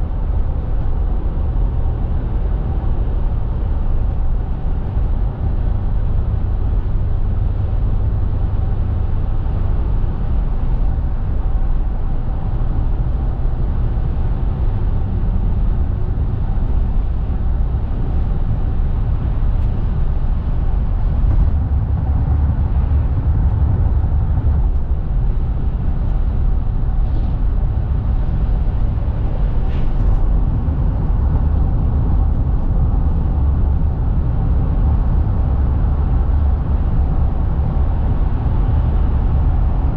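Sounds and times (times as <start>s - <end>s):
road and tyre rumble: 0.0s - 39.9s.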